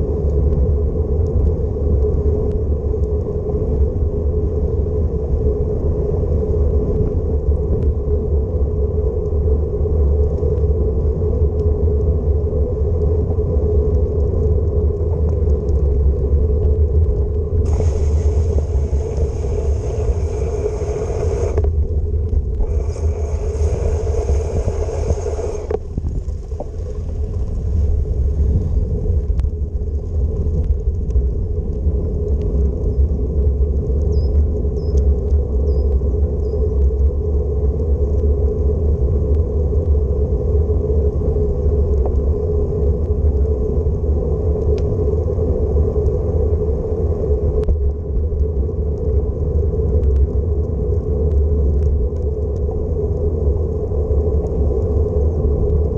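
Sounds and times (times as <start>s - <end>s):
wind buffeting microphone: 0.0s - 55.9s
hiss: 17.6s - 21.7s, 22.6s - 26.0s.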